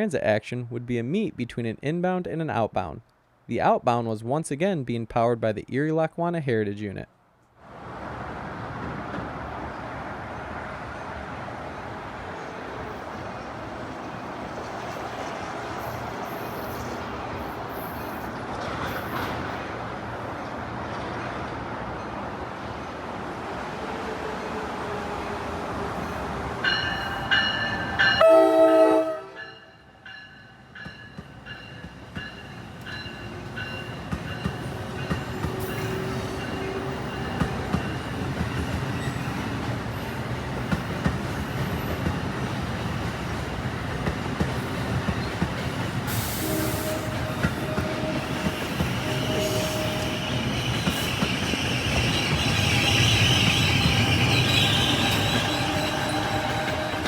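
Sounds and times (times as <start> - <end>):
train running on rails: 7.6 - 57.0
train horn: 28.0 - 29.7, 34.7 - 37.4, 46.2 - 50.8, 52.3 - 57.0
wheel squeal: 49.3 - 57.0.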